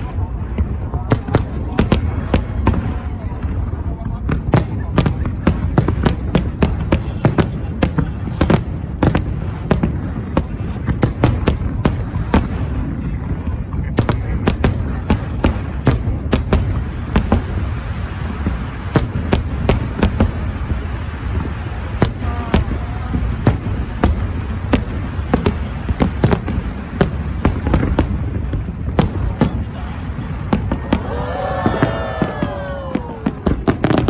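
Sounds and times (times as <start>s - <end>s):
fireworks bangs: 0.0s - 34.0s.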